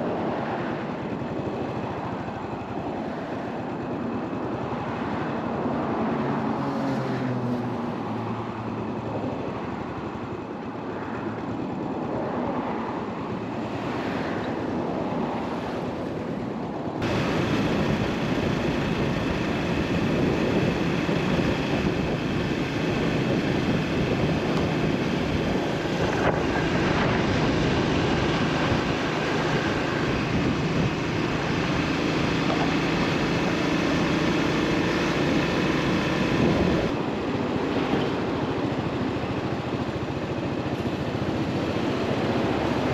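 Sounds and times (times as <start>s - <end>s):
wind and road noise: 0.0s - 42.9s
motorcycle engine running: 17.0s - 42.9s.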